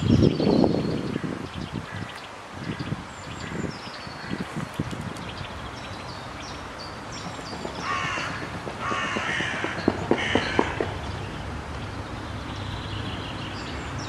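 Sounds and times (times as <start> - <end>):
harsh rasping caws: 7.8 - 10.9.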